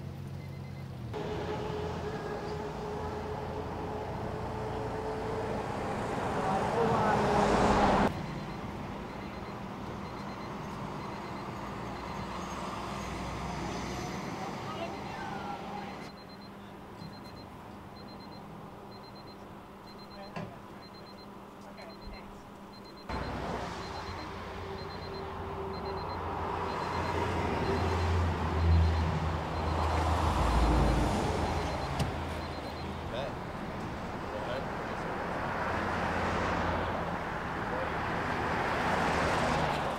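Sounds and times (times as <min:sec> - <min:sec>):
freeway traffic noise: 0:00.0 - 0:39.9
vehicle engine hum: 0:00.0 - 0:39.9
faint high beep: 0:00.4 - 0:00.9, 0:08.1 - 0:12.6, 0:14.8 - 0:29.0, 0:30.9 - 0:33.0.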